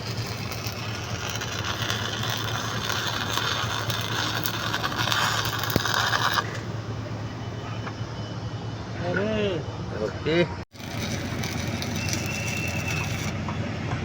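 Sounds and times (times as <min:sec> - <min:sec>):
welding arc crackling: 0:00.0 - 0:06.9, 0:10.7 - 0:13.4.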